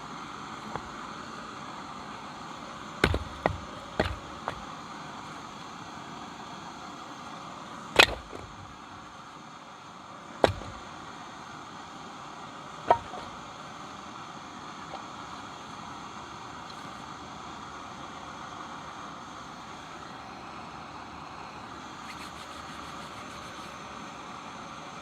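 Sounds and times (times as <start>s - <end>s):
axe splitting firewood: 0.4s - 1.6s, 2.7s - 5.0s, 7.9s - 9.0s, 10.4s - 11.1s, 12.8s - 13.6s.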